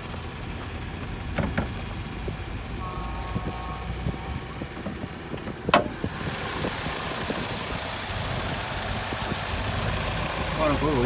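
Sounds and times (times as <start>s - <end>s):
car engine idling: 0.0s - 11.0s
brief tone: 2.8s - 4.8s.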